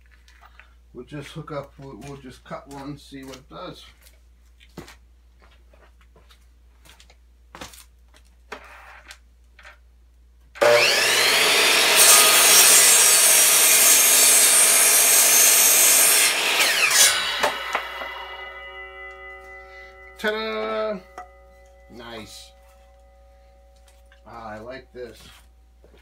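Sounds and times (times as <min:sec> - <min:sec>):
miter saw motor whining: 0:10.6 - 0:19.3
saw blade cutting wood: 0:10.6 - 0:23.0.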